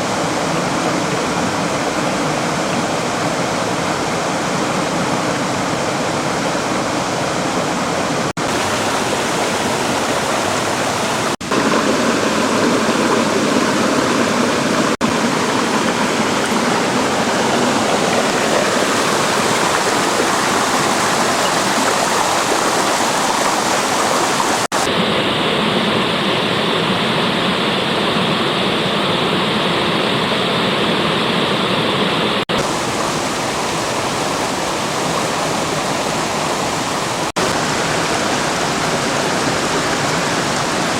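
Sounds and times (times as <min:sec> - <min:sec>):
fast stream rushing water: 0:00.0 - 0:40.9.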